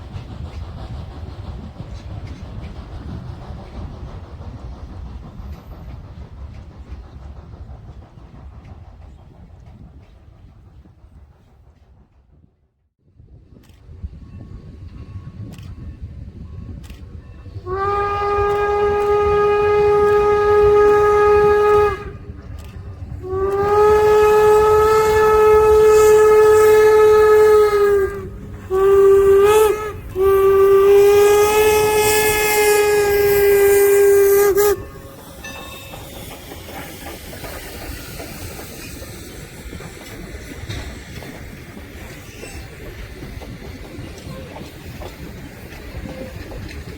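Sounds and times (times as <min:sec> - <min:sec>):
hiss of running train: 0:00.0 - 0:46.9
steam whistle blasts: 0:17.6 - 0:36.1.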